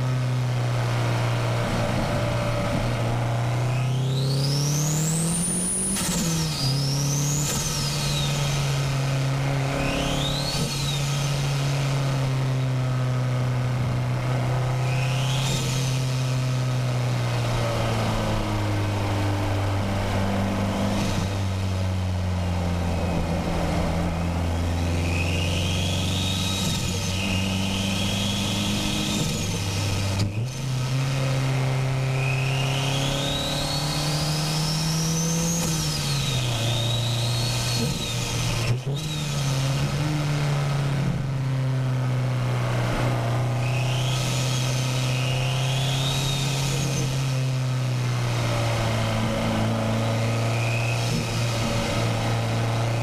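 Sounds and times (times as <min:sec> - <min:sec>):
car engine accelerating: 0:00.0 - 0:53.0
turbo whistle: 0:25.0 - 0:28.9, 0:32.1 - 0:33.6, 0:43.6 - 0:47.1, 0:50.3 - 0:51.3.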